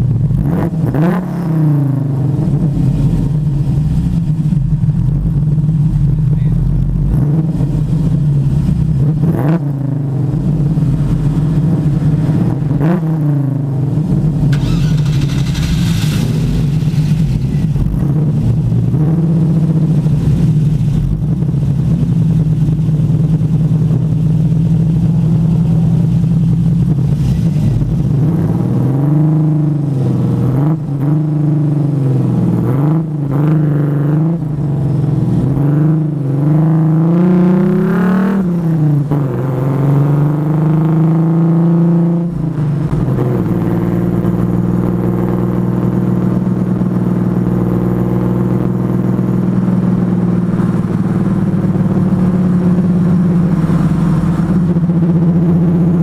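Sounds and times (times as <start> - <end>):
engine throttle blips: 0.0 - 31.1
car engine idling: 1.9 - 28.8.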